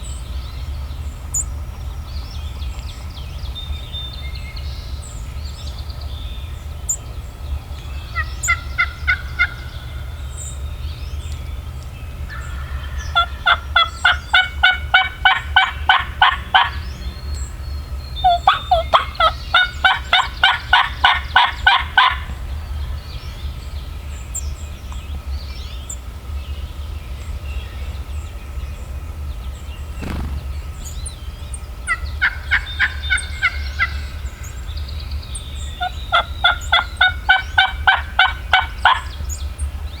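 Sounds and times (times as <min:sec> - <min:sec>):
wild turkey yelping: 0:08.1 - 0:10.1, 0:12.3 - 0:16.8, 0:18.2 - 0:22.3, 0:31.9 - 0:34.3, 0:35.8 - 0:39.1.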